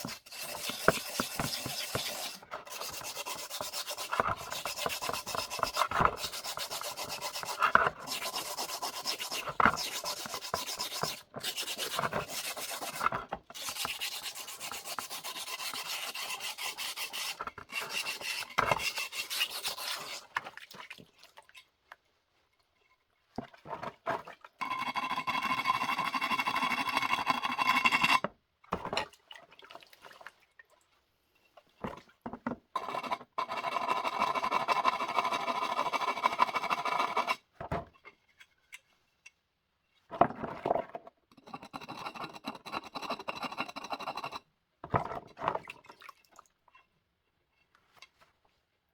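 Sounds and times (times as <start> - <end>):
gritty scratching of stoneware: 0.0 - 20.3, 32.8 - 37.4, 41.4 - 44.4.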